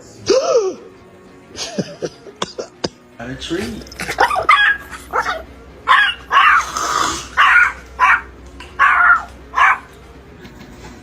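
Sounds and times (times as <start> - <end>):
dog barking and growling: 3.8 - 10.0.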